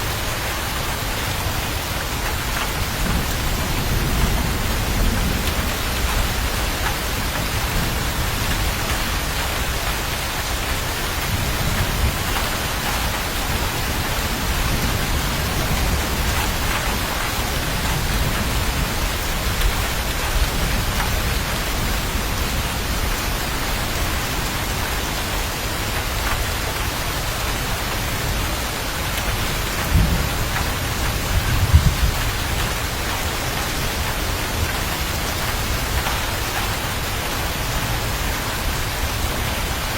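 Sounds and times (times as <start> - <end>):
heavy rain hissing: 0.0 - 39.9
thunder rolls: 29.2 - 32.8.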